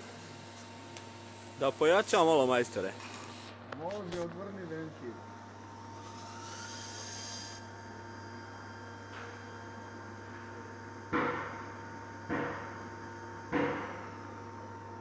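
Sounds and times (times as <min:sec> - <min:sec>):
steady low hum: 0:00.0 - 0:15.0
sharp knocks: 0:13.5 - 0:14.0.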